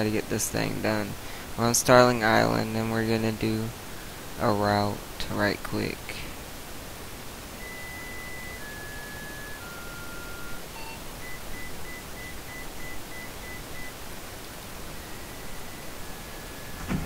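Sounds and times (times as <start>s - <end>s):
steady hiss: 0.0s - 17.0s
electronic dashboard chimes: 7.6s - 14.0s, 14.9s - 16.9s
rapid beeps: 7.6s - 14.0s, 14.9s - 16.8s.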